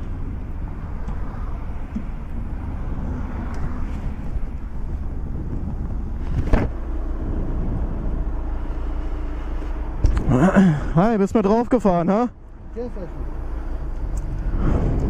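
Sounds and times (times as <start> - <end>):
motorcycle motor rumble: 0.0 - 11.6.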